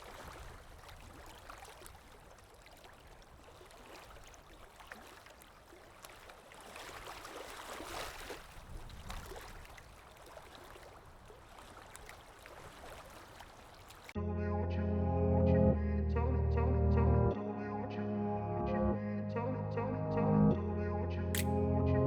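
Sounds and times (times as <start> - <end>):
wind buffeting microphone: 8.5 - 9.8.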